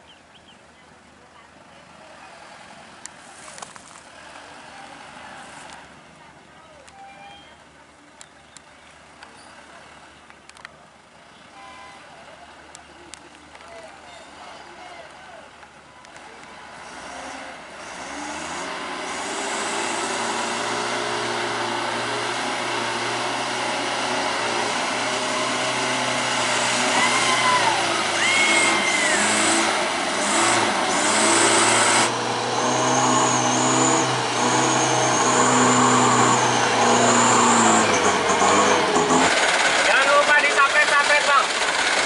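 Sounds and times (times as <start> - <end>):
truck engine revving: 16.3 - 42.0.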